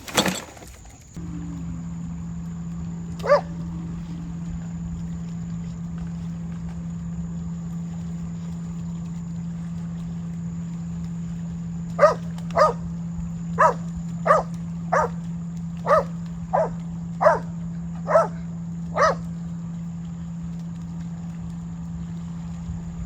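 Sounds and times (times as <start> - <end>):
steady low hum: 0.9 - 23.0
dog barking: 3.2 - 3.6, 12.0 - 12.8, 13.6 - 15.2, 15.8 - 19.3.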